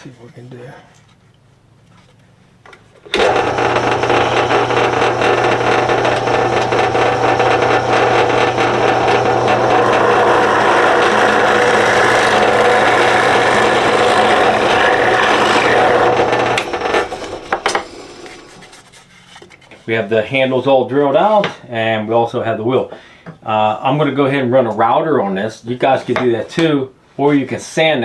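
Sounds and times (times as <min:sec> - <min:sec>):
power drill boring into wood: 0:03.1 - 0:18.8.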